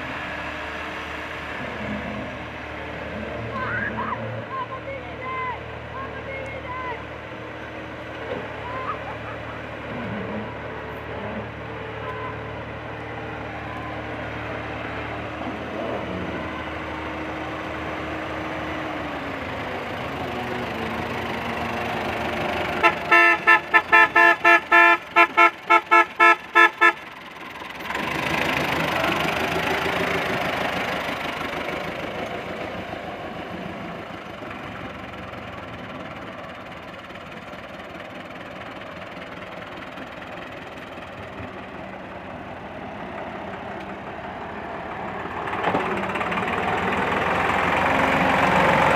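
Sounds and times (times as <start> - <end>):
vehicle passing rush: 0.0 - 36.8, 37.6 - 48.9
vehicle engine running: 0.0 - 48.9
horn toots: 22.8 - 27.0.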